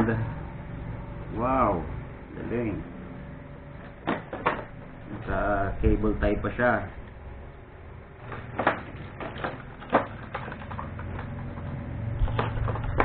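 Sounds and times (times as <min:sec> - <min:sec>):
faint low hum: 0:00.0 - 0:13.0
plastic packaging clicks and knocks: 0:04.0 - 0:04.7, 0:08.2 - 0:13.0.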